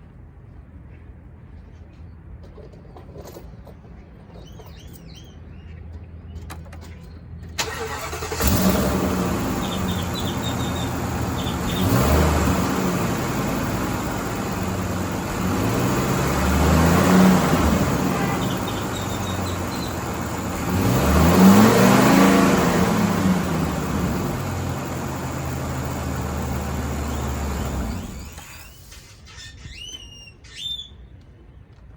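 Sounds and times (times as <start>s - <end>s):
truck engine idling and revving: 6.4s - 29.1s.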